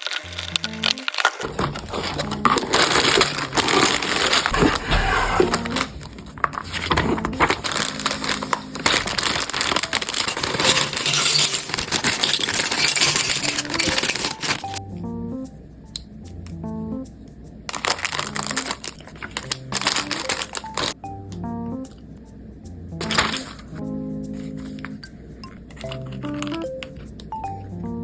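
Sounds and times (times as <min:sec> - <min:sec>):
plastic bags crinkling: 0:00.0 - 0:14.8, 0:17.7 - 0:21.0, 0:23.0 - 0:23.8, 0:25.6 - 0:27.3.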